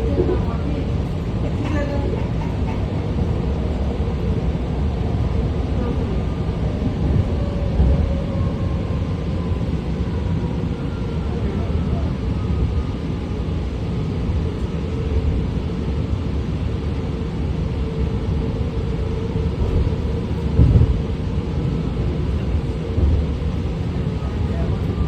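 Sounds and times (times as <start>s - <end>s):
train wheels rumbling on track: 0.0s - 25.0s
train bump: 19.5s - 21.2s.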